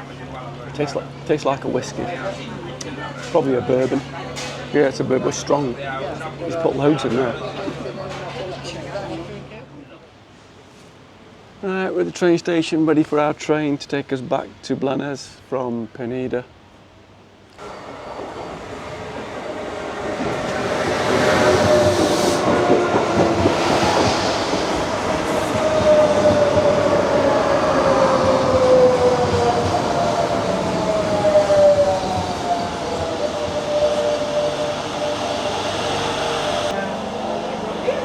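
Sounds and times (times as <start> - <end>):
train whine falling in pitch: 17.6 - 37.5
passenger train pulling in: 17.6 - 38.0.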